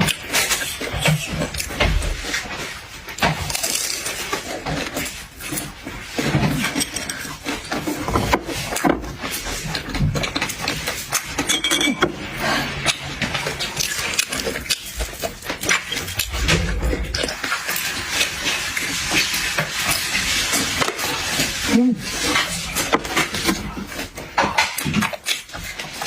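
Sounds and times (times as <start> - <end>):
chewing and crunching food: 0.0 - 26.0
dishes and cutlery clinking: 6.2 - 9.1, 9.8 - 13.0.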